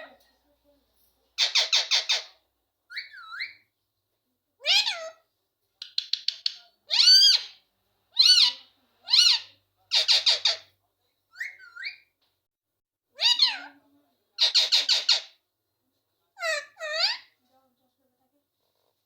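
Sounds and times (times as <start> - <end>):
parrot chattering: 1.4 - 3.6, 5.8 - 7.6, 8.2 - 10.7, 14.4 - 15.4
parrot crying: 4.6 - 5.2, 6.9 - 7.6, 8.2 - 10.6, 13.2 - 13.8, 16.4 - 17.3.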